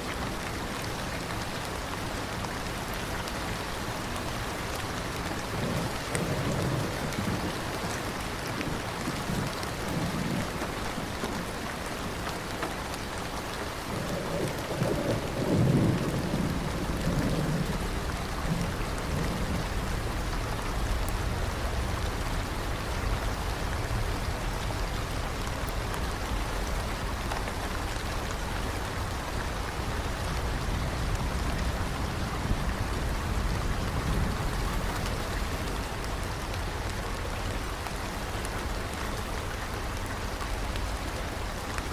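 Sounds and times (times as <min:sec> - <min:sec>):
steady rain: 0:00.0 - 0:41.9
distant thunder rolls: 0:05.5 - 0:08.0, 0:13.9 - 0:25.7, 0:29.4 - 0:36.7.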